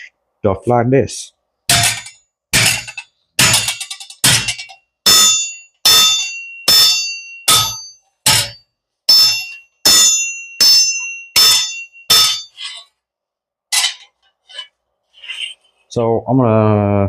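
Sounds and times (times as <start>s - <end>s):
hammer striking metal anvil: 1.7s - 12.8s.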